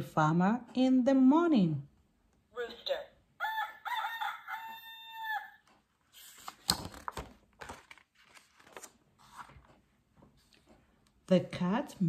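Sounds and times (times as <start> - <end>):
recorded rooster crowing: 3.4 - 5.7
paper rustling: 6.1 - 10.8
soft knocks of page turning: 6.1 - 10.8.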